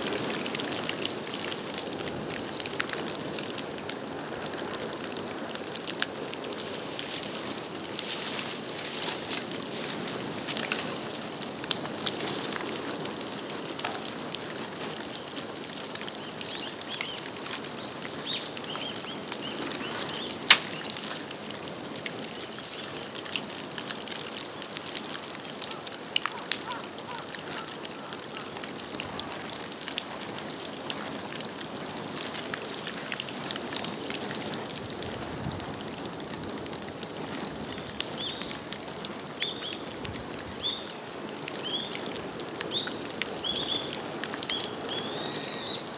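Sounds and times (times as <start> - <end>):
bonfire crackling: 0.0 - 45.9
loud pop from fire: 20.5 - 21.3.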